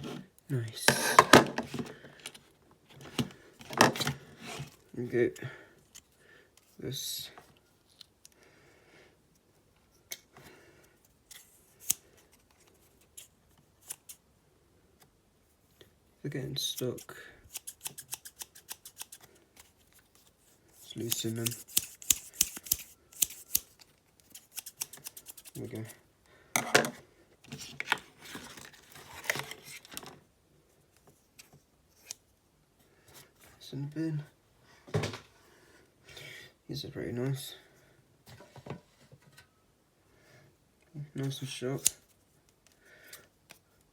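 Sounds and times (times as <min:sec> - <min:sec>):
scissors snipping: 0:11.3 - 0:12.0, 0:17.5 - 0:19.7, 0:21.0 - 0:25.6, 0:41.8 - 0:42.0.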